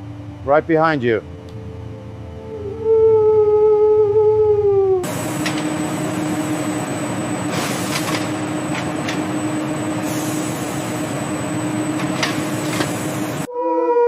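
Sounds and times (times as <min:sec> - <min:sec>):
machine low hum: 0:05.0 - 0:13.5.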